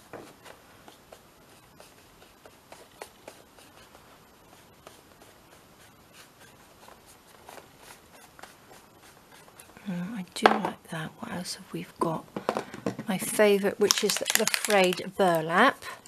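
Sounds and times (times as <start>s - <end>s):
light taps and scratches on paper: 0.0s - 9.8s.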